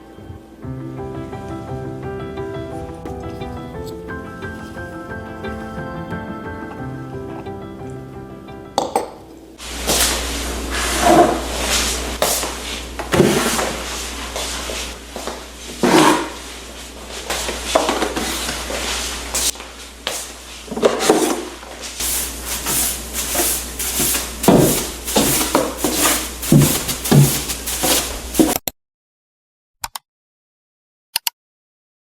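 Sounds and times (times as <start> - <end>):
knocks and clatter of objects: 24.0 - 28.6.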